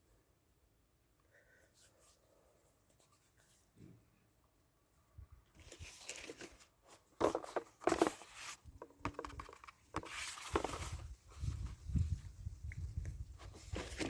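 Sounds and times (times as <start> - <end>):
rustling and crunching handling noises: 5.4 - 14.0.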